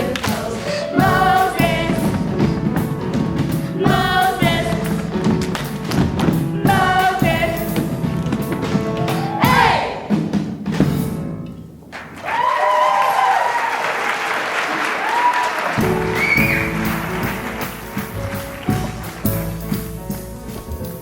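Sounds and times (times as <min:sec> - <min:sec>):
instrumental music: 0:00.0 - 0:11.9, 0:15.8 - 0:21.0
audience applauding and cheering: 0:11.9 - 0:21.0.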